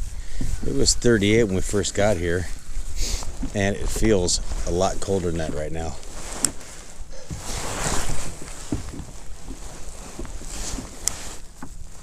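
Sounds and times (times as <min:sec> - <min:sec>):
water slapping kayak hull: 0:00.0 - 0:12.0.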